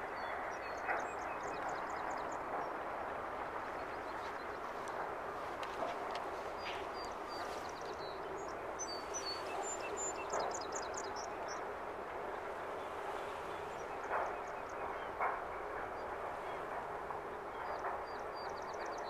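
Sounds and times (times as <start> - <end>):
outdoor background rush: 0.0 - 19.0
birds chirping: 5.7 - 11.6.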